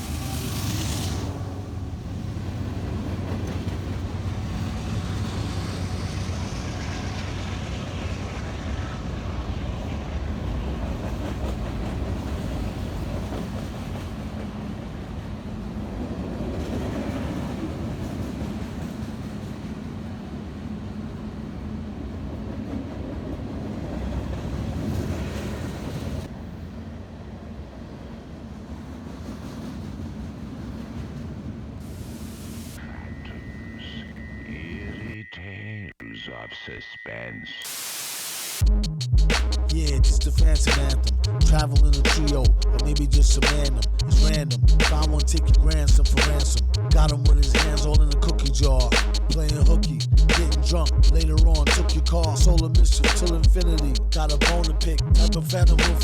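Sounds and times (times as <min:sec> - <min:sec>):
freight train wheels rumbling on rail: 0:00.0 - 0:32.3.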